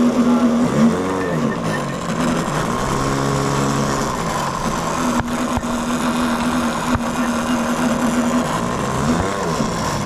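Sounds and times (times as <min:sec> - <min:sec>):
model airplane engine droning: 0:00.0 - 0:10.0.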